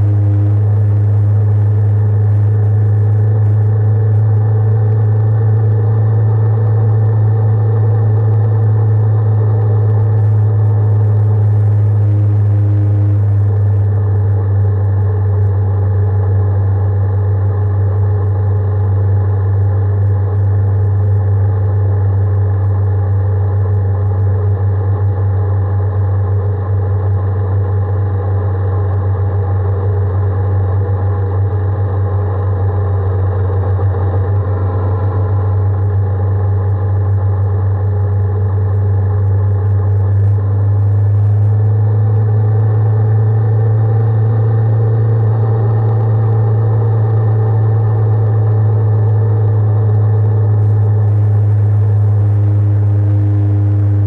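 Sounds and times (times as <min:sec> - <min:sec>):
motorcycle engine droning: 0:00.0 - 0:24.6, 0:28.5 - 0:54.0.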